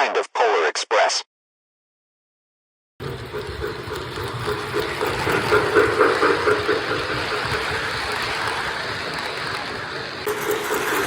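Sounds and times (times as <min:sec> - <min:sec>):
locomotive engine hum: 0:03.0 - 0:11.0.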